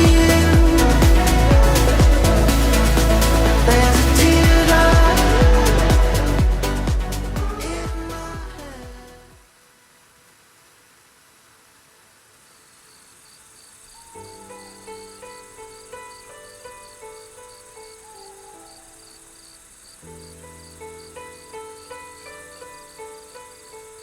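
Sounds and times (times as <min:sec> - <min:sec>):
soft melodic music: 0:00.0 - 0:09.3, 0:14.3 - 0:18.9
cricket chirping: 0:12.4 - 0:24.0.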